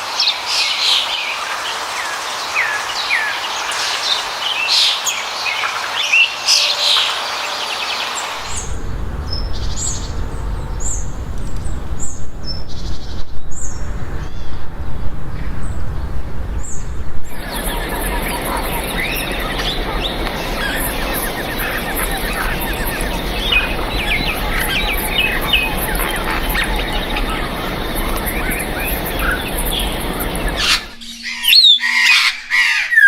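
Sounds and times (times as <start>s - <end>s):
low rumble: 8.4s - 31.6s
birds chirping and whistling: 8.4s - 33.0s.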